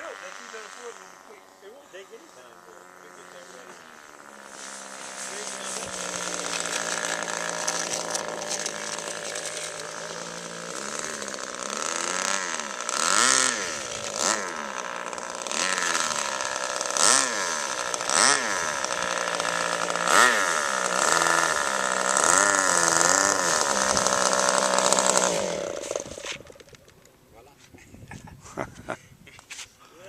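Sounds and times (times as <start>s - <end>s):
model airplane engine: 0.0s - 27.2s.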